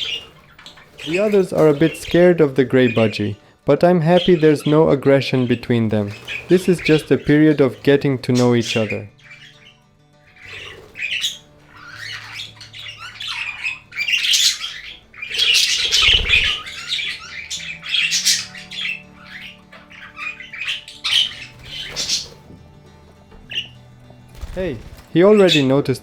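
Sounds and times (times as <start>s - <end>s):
budgerigars chattering and squawking: 0.0s - 26.0s
soft background music: 0.0s - 26.0s.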